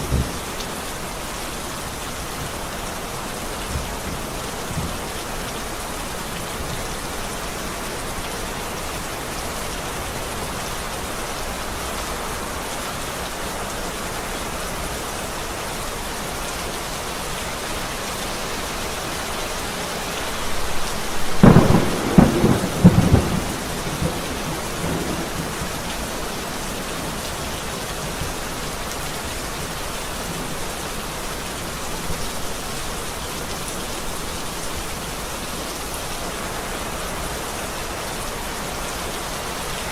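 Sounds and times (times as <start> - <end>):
rain falling: 0.0 - 39.9
thunder crack and rumble: 21.1 - 26.0.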